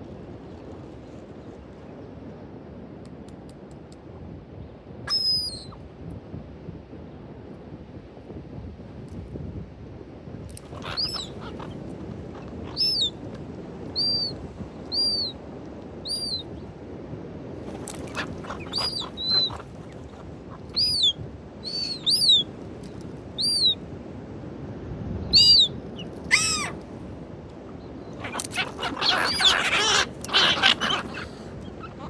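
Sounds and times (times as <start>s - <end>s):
birds chirping: 10.6s - 15.4s, 16.0s - 16.5s, 17.6s - 22.5s, 23.4s - 23.8s, 25.3s - 32.0s
lower falling bird call: 10.7s - 13.3s, 13.9s - 15.4s, 16.0s - 16.5s, 17.7s - 22.5s, 23.4s - 23.8s, 25.3s - 26.8s, 27.6s - 32.0s.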